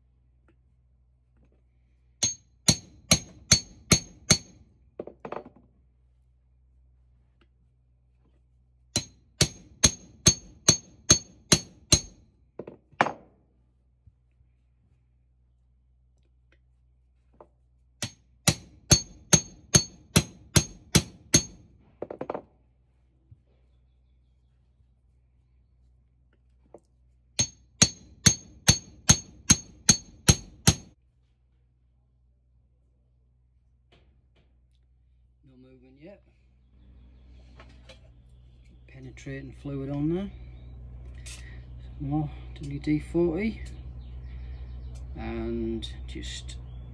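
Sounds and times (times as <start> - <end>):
hammer striking metal: 2.2 - 4.6, 8.9 - 12.2, 18.0 - 21.7, 27.4 - 31.0.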